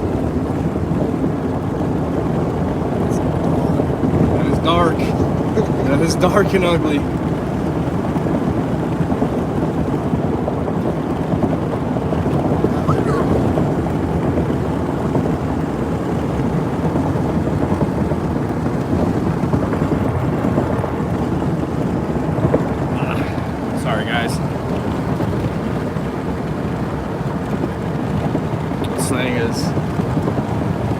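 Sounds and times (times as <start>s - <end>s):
vehicle road and wind noise: 0.0s - 30.9s.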